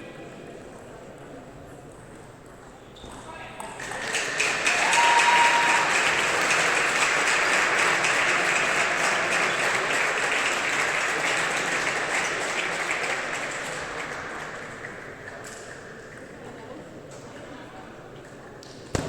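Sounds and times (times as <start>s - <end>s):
audience applauding: 3.8s - 14.6s.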